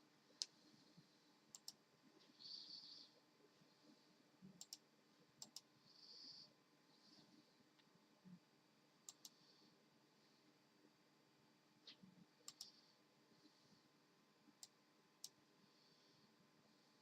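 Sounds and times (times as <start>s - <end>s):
faint sharp clicks in pairs: 1.5s - 1.8s, 4.6s - 5.7s, 9.0s - 9.4s, 11.8s - 12.8s.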